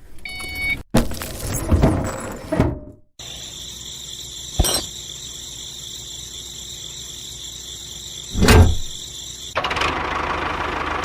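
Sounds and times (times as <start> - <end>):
insect chirring: 3.2 - 9.6
thump: 8.4 - 8.9.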